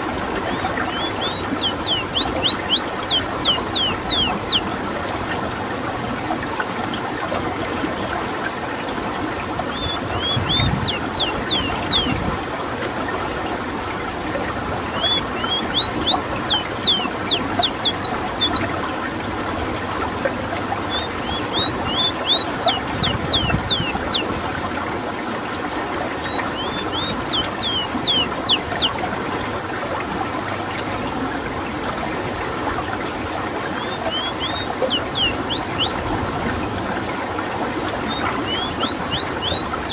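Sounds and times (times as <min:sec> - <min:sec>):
bird singing high notes: 0:00.8 - 0:04.7, 0:09.7 - 0:12.2, 0:14.9 - 0:18.8, 0:20.8 - 0:24.3, 0:26.2 - 0:29.0, 0:33.8 - 0:36.0, 0:38.1 - 0:39.9.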